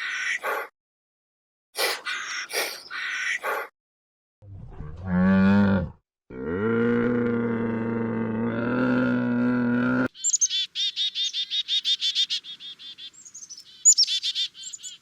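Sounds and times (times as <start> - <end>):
cow mooing: 4.8 - 10.1.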